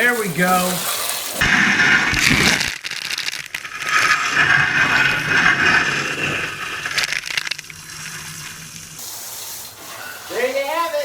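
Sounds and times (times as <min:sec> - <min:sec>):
dishwasher water spraying: 0:00.0 - 0:01.5, 0:07.4 - 0:11.0.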